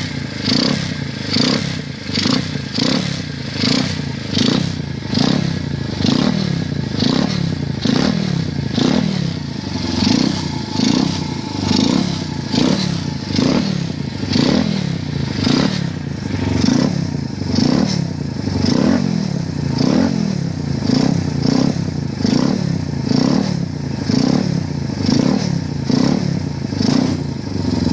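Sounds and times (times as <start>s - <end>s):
motorbike engine revving: 0.0s - 27.9s.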